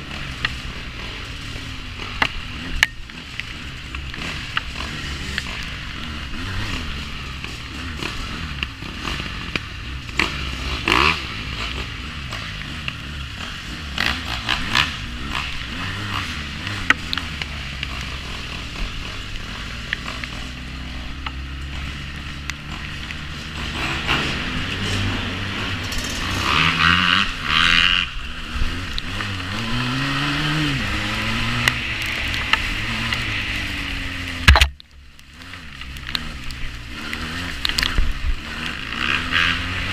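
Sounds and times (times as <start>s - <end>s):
quad bike engine revving: 0.0s - 39.9s
knocks and scrapes: 11.6s - 27.9s, 28.5s - 39.9s.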